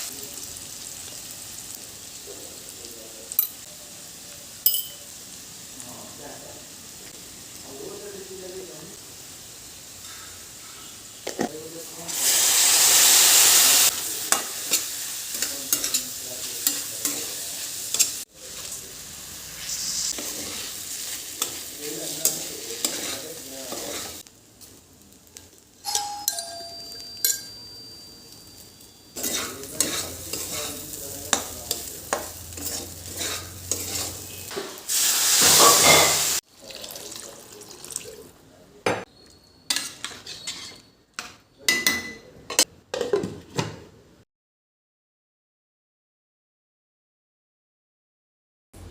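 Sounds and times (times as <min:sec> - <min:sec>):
food sizzling in a hot pan: 0:00.0 - 0:38.3
utensil scraping a pan: 0:19.6 - 0:24.2, 0:29.2 - 0:34.8, 0:35.4 - 0:36.4, 0:39.7 - 0:40.9.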